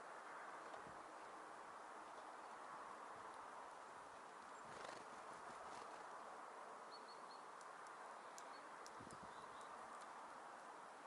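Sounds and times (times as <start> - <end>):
small birds calling: 8.2 - 10.0.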